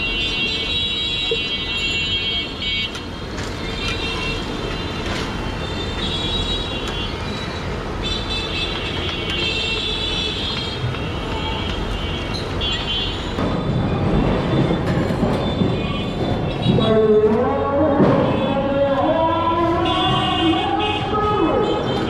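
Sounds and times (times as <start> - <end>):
vehicle horns: 0.0 - 7.3, 8.0 - 13.4, 18.0 - 22.0
traffic engine rumble: 1.2 - 22.0.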